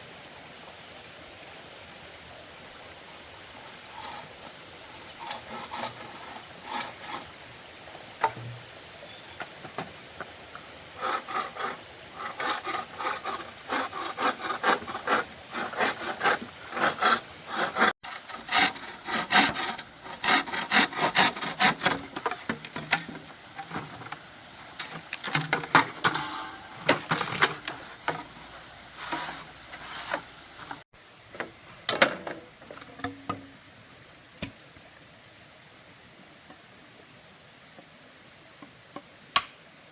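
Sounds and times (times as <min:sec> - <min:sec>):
high-pitched insect chorus: 0:00.0 - 0:39.9
hand saw cutting wood: 0:05.2 - 0:07.4, 0:11.0 - 0:24.1, 0:24.8 - 0:28.4, 0:29.0 - 0:30.8.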